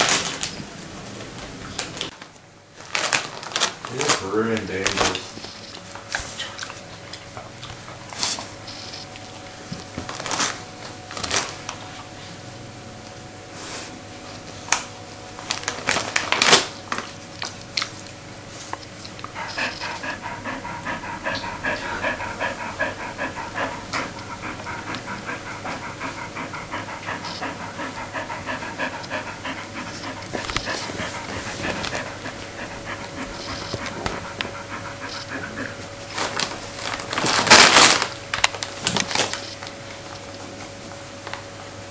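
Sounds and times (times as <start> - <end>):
dog panting: 19.2 - 36.5.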